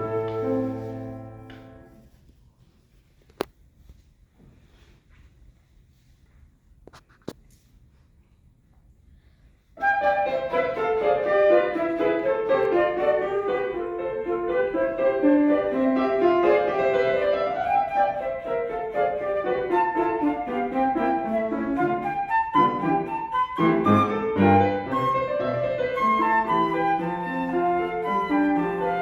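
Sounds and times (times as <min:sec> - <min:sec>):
flute and piano duet: 0:00.0 - 0:02.0, 0:09.8 - 0:29.0.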